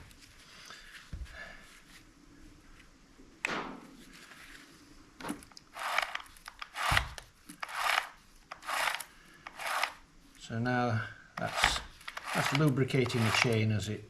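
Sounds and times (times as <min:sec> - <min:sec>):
sharp scrape: 0:05.8 - 0:10.0, 0:11.4 - 0:13.6
rubbing strokes on a chainsaw: 0:07.7 - 0:09.9, 0:11.4 - 0:13.7.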